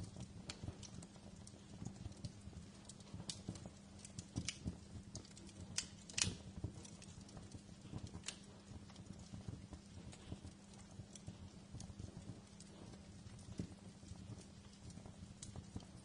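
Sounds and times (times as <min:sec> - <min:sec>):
sharp fire snaps: 0:00.0 - 0:16.0
wood fire crackling: 0:00.0 - 0:16.0.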